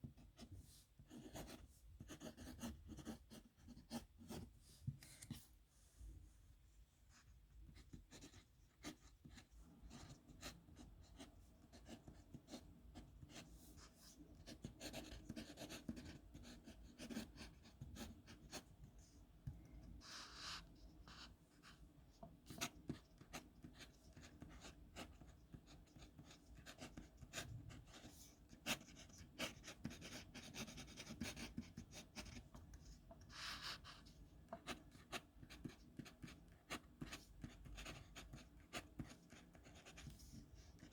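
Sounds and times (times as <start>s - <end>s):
pen scratching on paper: 1.1s - 4.5s, 7.8s - 18.7s, 22.5s - 32.4s, 33.2s - 40.9s.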